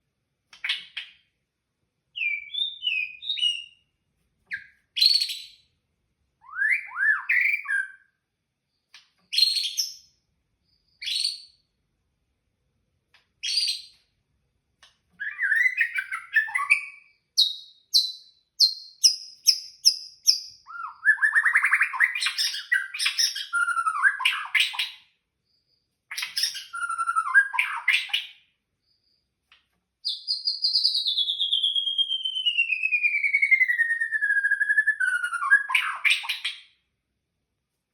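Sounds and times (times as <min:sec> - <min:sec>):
bird singing whistles and trills: 0:02.2 - 0:03.9, 0:04.5 - 0:05.7, 0:06.4 - 0:08.2, 0:09.3 - 0:10.1, 0:10.8 - 0:11.6, 0:13.4 - 0:14.0, 0:15.2 - 0:25.1, 0:26.1 - 0:29.0, 0:30.0 - 0:36.8.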